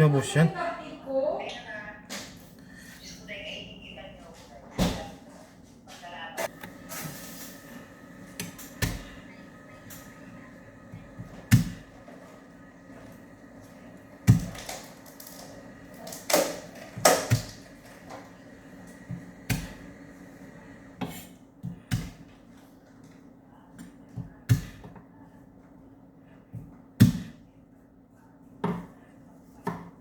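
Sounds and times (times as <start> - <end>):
faint steady hum: 6.0 - 22.2.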